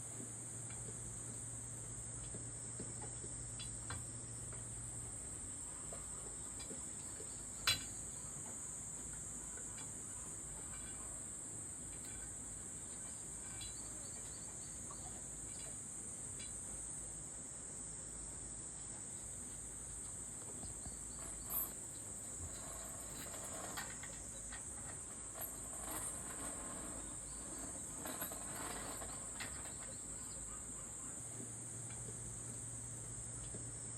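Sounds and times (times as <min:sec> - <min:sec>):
insects chorus: 0:00.0 - 0:33.9.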